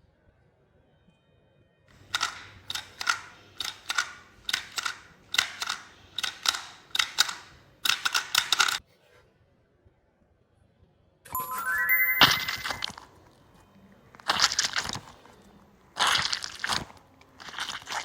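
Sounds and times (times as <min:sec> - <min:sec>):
crunchy ball being crushed: 0:12.6 - 0:13.4, 0:14.0 - 0:18.0.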